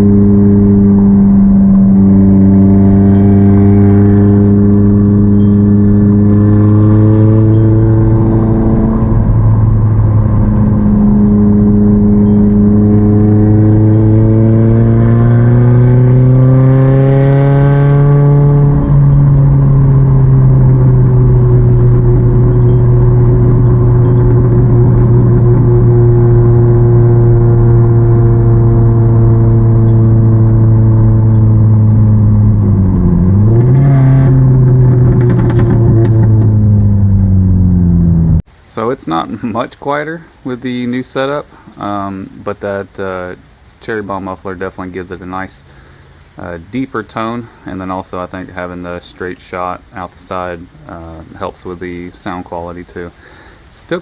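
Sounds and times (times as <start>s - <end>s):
car exhaust while driving: 0.0s - 38.6s.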